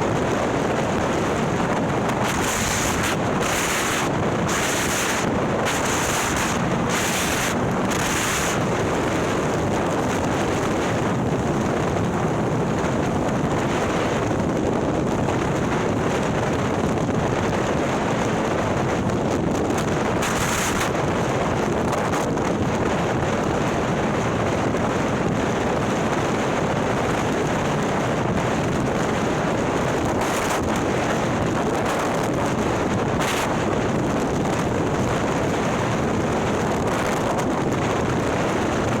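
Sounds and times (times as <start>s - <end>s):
road noise: 0.0s - 18.9s
wind rushing over microphone: 0.0s - 39.0s.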